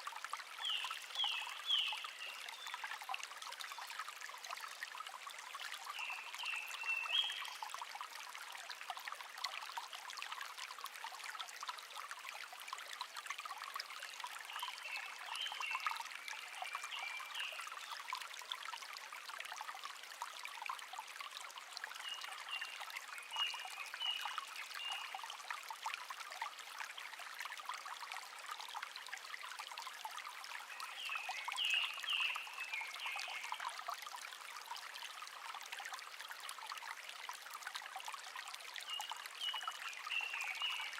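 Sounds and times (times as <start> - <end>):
stream trickling and babbling: 0.0 - 40.9.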